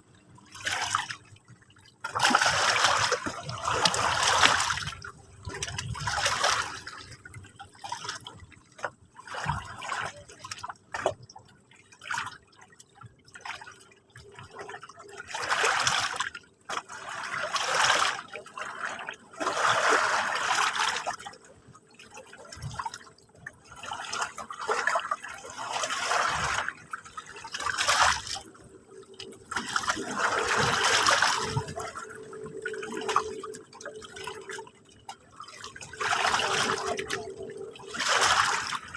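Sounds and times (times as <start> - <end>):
small waves lapping on shore: 2.0 - 11.2, 15.2 - 34.6.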